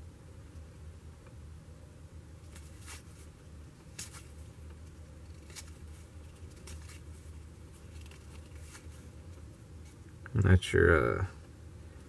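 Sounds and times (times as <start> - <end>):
low steady hum: 0.0 - 12.0
cards swishing: 2.5 - 9.1.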